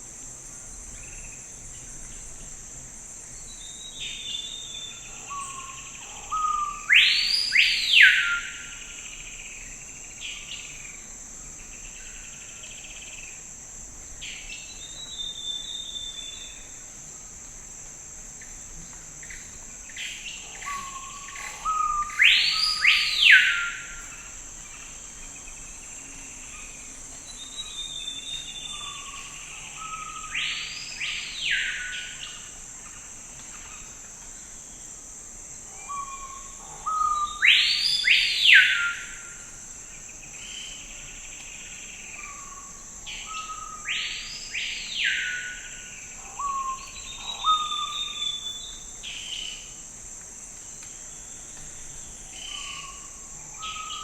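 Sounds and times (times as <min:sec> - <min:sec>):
high insect drone: 0:00.0 - 0:54.0.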